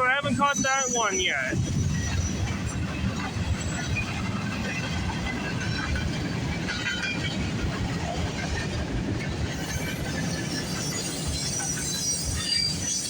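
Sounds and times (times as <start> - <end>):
train wheels rumbling on rails: 0.0 - 13.0
high wheel squeaks: 9.6 - 13.0.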